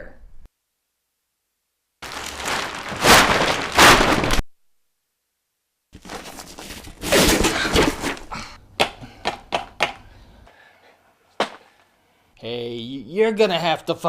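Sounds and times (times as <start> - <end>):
rustling scraping noise: 2.0 - 4.4, 6.0 - 8.3.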